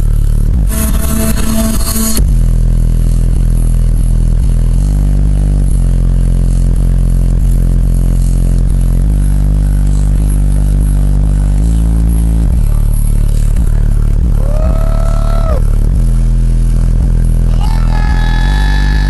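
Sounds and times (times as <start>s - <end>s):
bass-heavy music through subwoofer: 0.0s - 19.0s.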